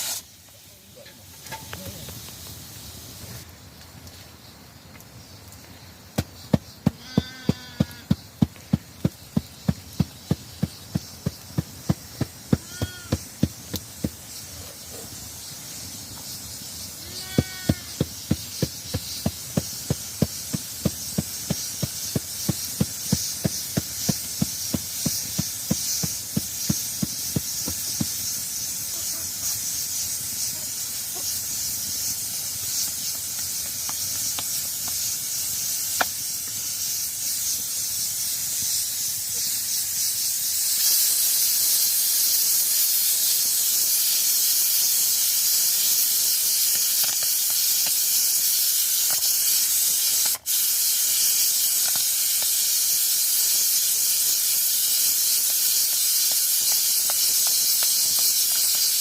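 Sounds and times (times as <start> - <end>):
steady high hiss: 0.0 - 59.0
sheep bleating: 7.0 - 8.1, 12.6 - 13.2, 17.0 - 18.0.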